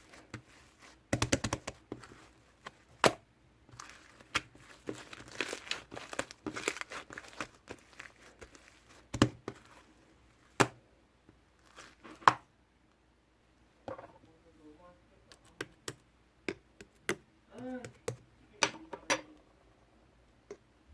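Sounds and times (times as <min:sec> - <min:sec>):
slime squishing and crackling: 0:00.0 - 0:10.8, 0:11.6 - 0:12.4.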